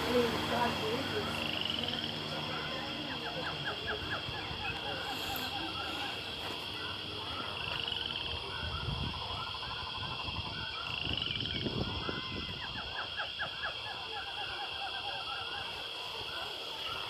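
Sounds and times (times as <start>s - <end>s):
steady high drone: 0.0s - 8.6s
chirping animal calls: 0.0s - 17.0s.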